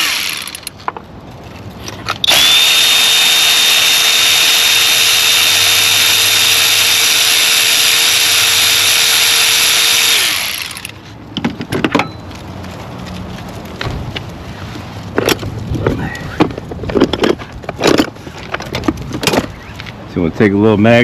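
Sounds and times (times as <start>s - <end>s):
cordless power tool whining: 0.0s - 0.7s, 2.2s - 10.9s.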